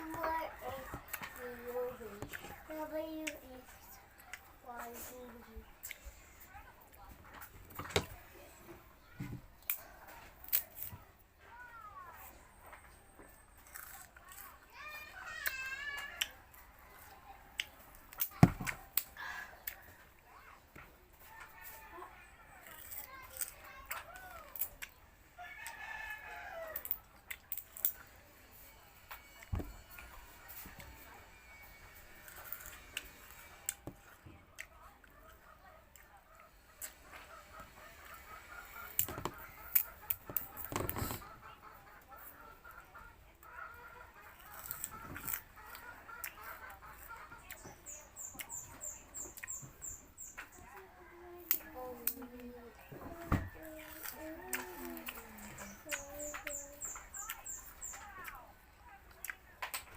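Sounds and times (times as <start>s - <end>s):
sugarcane crunching: 13.6s - 14.6s, 32.2s - 33.8s
rooster crowing: 25.4s - 26.9s
bird chirping: 55.2s - 58.3s.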